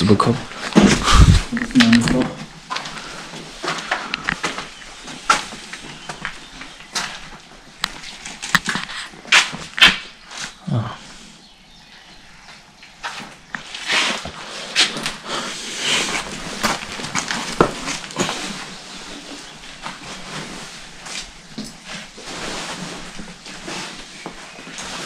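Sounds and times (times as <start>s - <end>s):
footsteps crunching over rubble: 0.4s - 10.6s, 16.0s - 25.0s.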